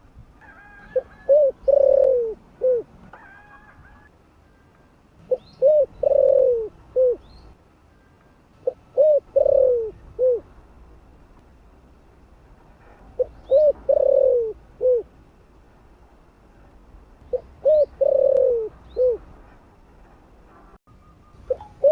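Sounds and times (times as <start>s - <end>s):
dove cooing: 0.6s - 4.1s, 5.2s - 7.3s, 8.6s - 10.5s, 13.2s - 15.1s, 17.3s - 19.3s, 21.5s - 21.9s.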